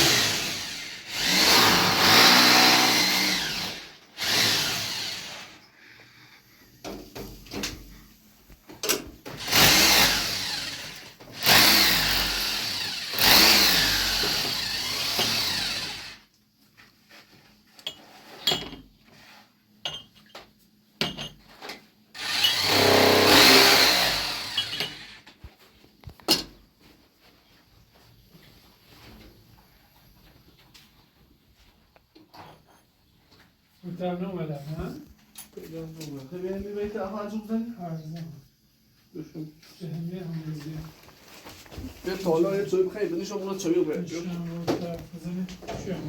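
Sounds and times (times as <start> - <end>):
power tool running: 0.0 - 5.6, 9.4 - 16.2, 22.2 - 25.2.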